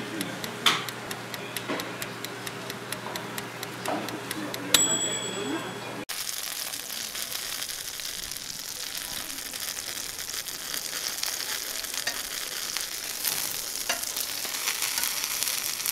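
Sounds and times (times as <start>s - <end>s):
food sizzling in a pan: 6.1s - 15.9s.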